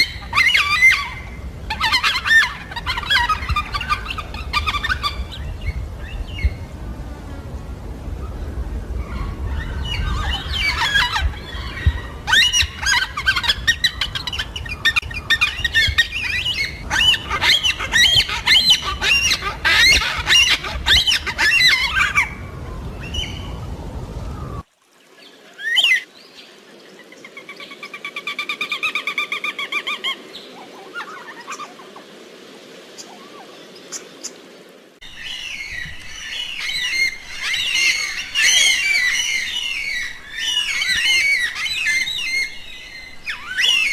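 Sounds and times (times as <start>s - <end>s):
cockatoos squawking and chattering: 0.0s - 5.8s, 9.1s - 22.7s
drawn-out wailing bird call: 0.0s - 6.4s, 8.3s - 24.6s, 35.1s - 43.9s.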